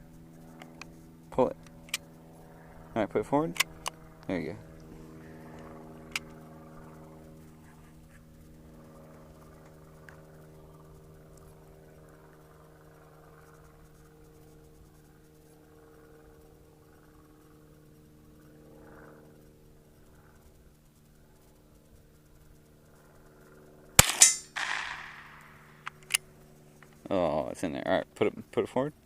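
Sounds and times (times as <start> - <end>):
mechanical hum: 0.0 - 29.0
sharp click: 24.0 - 26.2.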